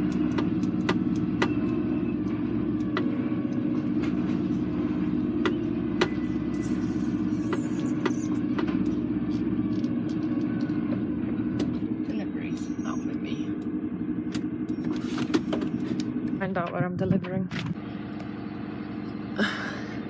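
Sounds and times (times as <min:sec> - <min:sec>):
lorry engine running: 0:00.0 - 0:20.0.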